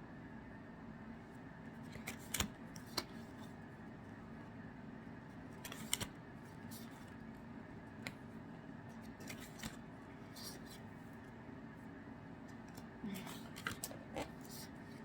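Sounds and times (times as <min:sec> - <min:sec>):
low steady background hum: 0:00.0 - 0:15.0
cards rustling: 0:01.9 - 0:03.5, 0:05.4 - 0:07.2, 0:09.0 - 0:10.9, 0:12.6 - 0:14.8.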